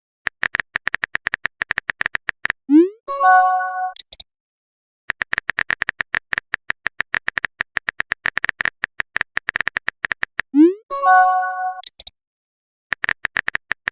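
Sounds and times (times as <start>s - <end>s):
rapid keyboard typing clicks: 0.3s - 2.6s, 5.1s - 10.5s, 12.9s - 13.9s
chime notification tone: 2.8s - 4.0s, 10.7s - 11.8s.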